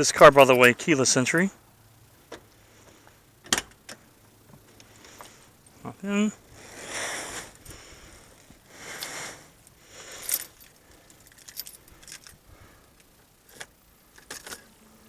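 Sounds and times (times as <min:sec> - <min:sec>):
keys jangling: 0:10.1 - 0:12.4.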